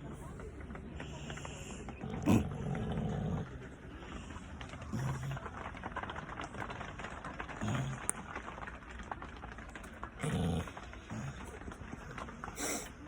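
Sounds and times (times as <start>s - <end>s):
rain pattering: 0.0s - 13.0s
dog snoring: 1.0s - 5.5s, 7.6s - 8.2s, 10.2s - 11.6s.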